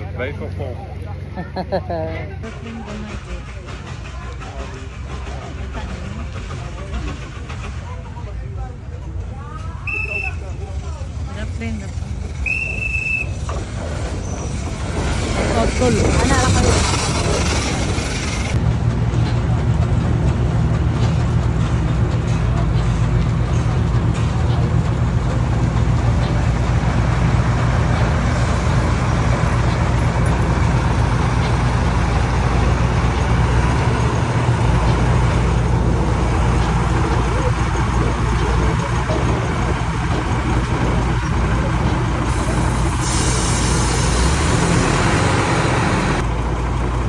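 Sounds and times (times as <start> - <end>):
running vehicle rumble: 0.0 - 47.0.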